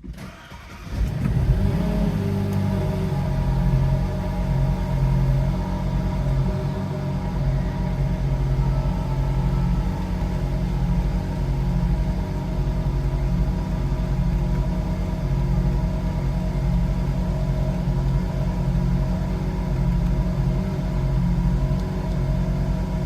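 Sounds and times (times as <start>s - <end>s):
car engine idling: 0.6s - 23.0s.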